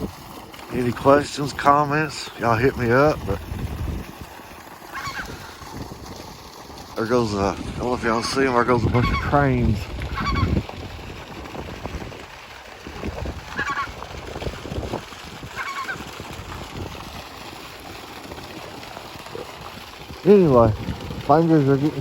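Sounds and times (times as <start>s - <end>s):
wind rumbling on microphone: 2.4s - 4.4s, 5.0s - 22.0s
cranes calling: 4.8s - 5.6s, 8.1s - 9.4s, 10.0s - 10.7s, 13.4s - 14.1s, 15.5s - 16.1s.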